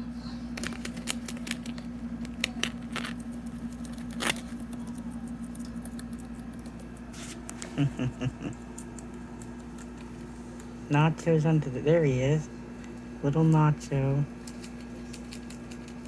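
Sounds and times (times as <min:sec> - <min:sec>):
guinea pigs chewing leaf: 0:00.0 - 0:16.0
steady low hum: 0:00.0 - 0:16.0
leaf ripping: 0:00.5 - 0:06.2.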